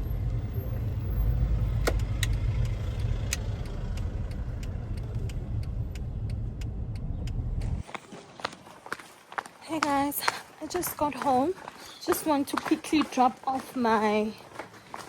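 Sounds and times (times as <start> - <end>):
car engine and road noise: 0.0 - 8.6
light ticks: 1.8 - 7.9.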